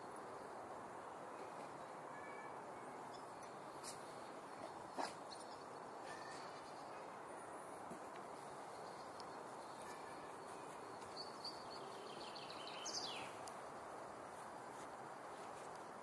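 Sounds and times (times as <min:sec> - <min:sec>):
outdoor ambience hiss: 0:00.0 - 0:16.0
bird chirps: 0:08.8 - 0:13.4.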